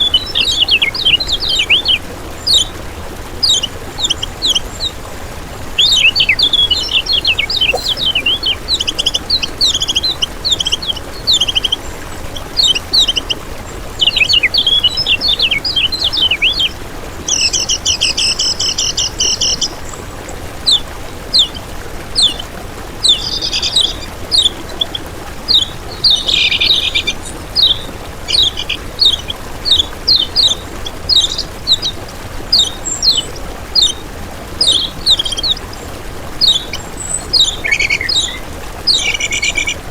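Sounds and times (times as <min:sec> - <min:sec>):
bird singing high chirps: 0:05.8 - 0:11.8, 0:23.0 - 0:34.0, 0:34.6 - 0:35.7, 0:36.4 - 0:39.8
short buzzy bird trill: 0:06.8 - 0:09.0.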